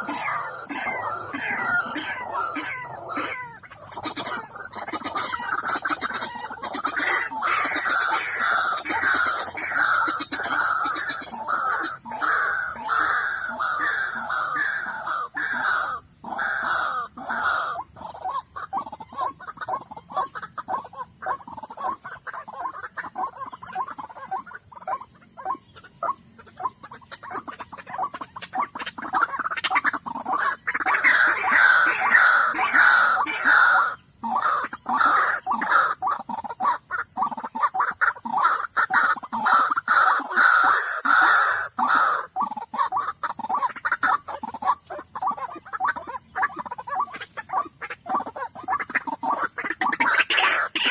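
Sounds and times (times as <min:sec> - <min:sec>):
bird calling: 0:00.0 - 0:50.9.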